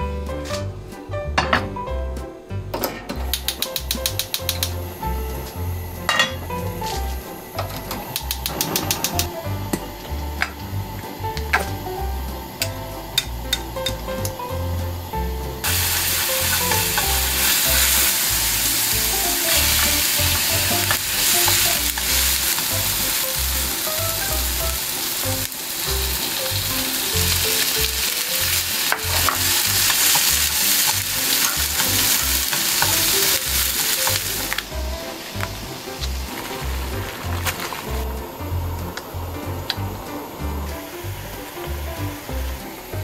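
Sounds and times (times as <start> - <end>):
chopsticks clicking against pan: 3.2 - 4.9, 7.9 - 9.8, 12.6 - 14.4
food sizzling in hot oil: 3.2 - 43.0.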